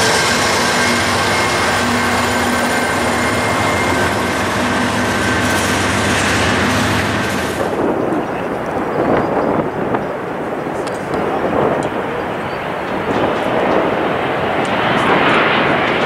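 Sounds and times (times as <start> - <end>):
steady high tones: 0.0 - 8.4
train wheels rushing on rail: 0.0 - 16.0.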